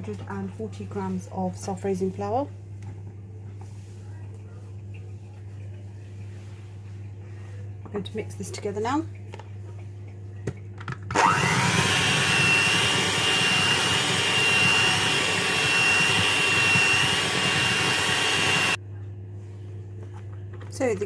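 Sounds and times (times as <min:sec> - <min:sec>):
electric mixer whining: 0:11.1 - 0:18.8.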